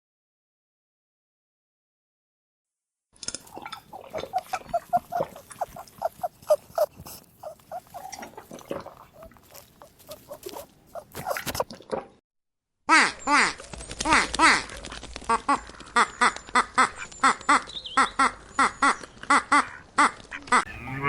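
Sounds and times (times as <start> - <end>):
short quick animal calls: 3.9 - 11.6.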